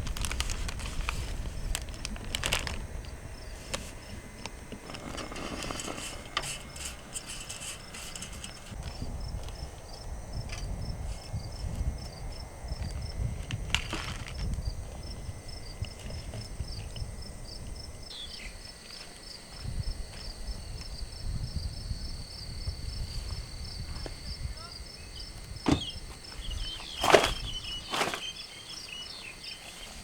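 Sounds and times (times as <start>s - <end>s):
wind buffeting microphone: 0.0s - 18.8s, 19.5s - 28.0s
crickets chirping: 0.0s - 30.0s.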